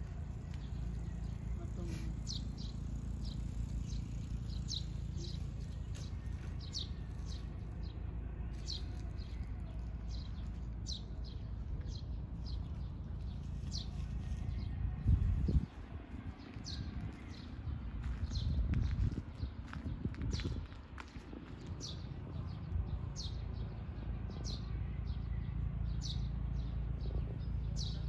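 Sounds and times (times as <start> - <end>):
small bird chirping: 0.0 - 14.8
steady low rumble: 0.0 - 28.0.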